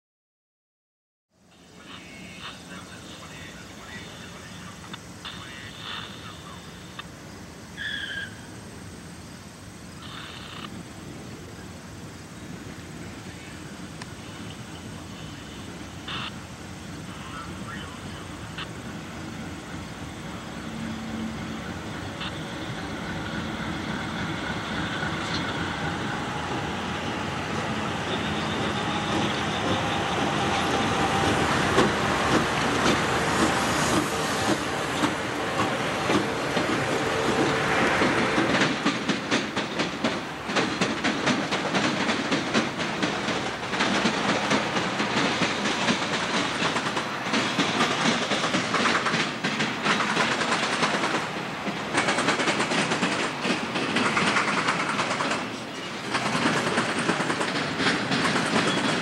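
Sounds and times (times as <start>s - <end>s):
diesel locomotives passing: 1.3s - 59.0s
wheels clattering over rail joints: 31.7s - 59.0s.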